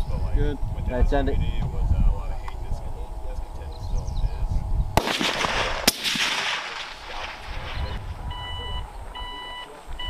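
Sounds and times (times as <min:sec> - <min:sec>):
rifle shots with rolling echo: 0:05.0 - 0:08.1
short electronic beeps: 0:08.3 - 0:09.8.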